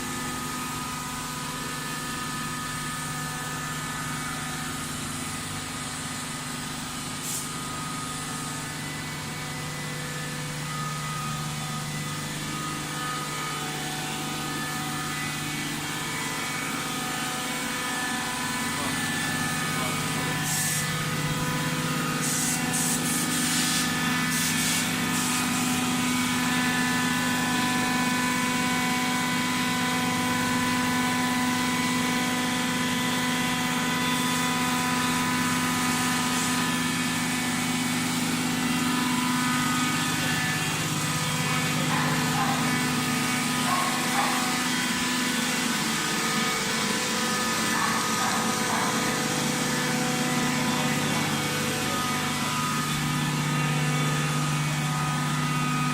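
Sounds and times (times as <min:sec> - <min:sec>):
baling machine motor hum: 0:00.2 - 0:55.9
short hydraulic hisses: 0:07.2 - 0:07.6.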